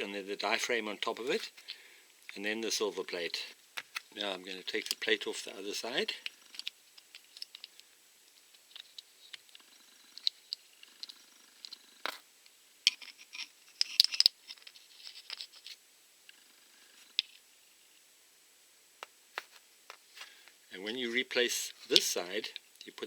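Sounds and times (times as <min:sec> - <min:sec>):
hand tools clicking and scraping: 0:05.8 - 0:07.8, 0:12.9 - 0:15.8, 0:21.6 - 0:22.6.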